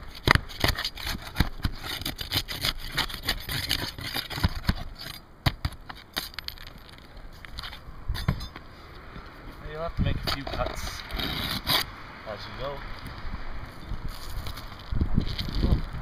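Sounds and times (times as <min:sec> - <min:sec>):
hand tools scraping roof shingles: 0:00.0 - 0:07.0, 0:10.3 - 0:11.9.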